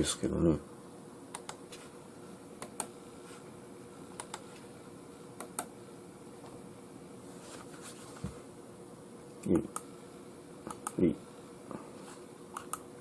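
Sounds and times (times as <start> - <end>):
faint steady hum: 0.0 - 13.0
mouse and keyboard clicks: 12.5 - 12.8.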